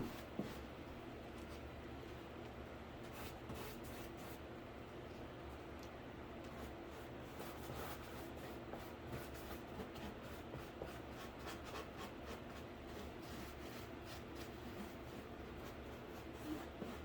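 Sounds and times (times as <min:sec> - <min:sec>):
low steady hum: 0:00.0 - 0:17.0
paintbrush strokes on cardboard: 0:03.0 - 0:04.4, 0:06.5 - 0:17.0.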